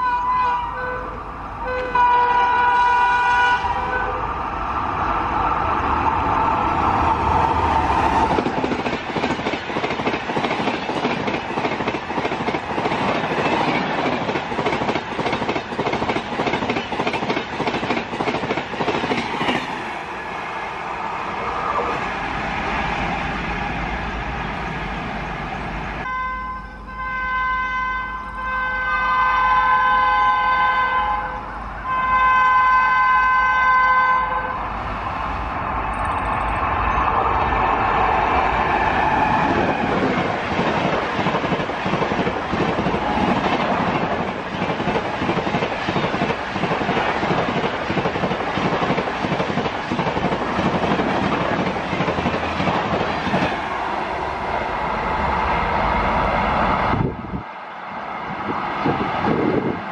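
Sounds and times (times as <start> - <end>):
train horn blasts: 0.0 - 4.3, 26.0 - 34.7
train wheels clattering over rails: 7.4 - 20.2, 37.6 - 53.8.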